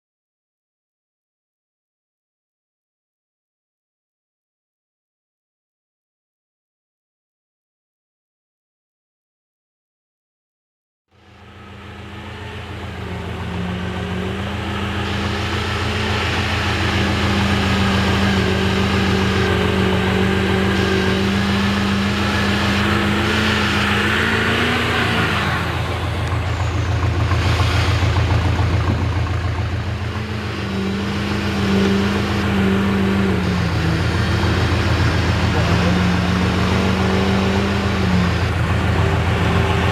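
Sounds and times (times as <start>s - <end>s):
diesel truck engine running: 11.2s - 39.9s.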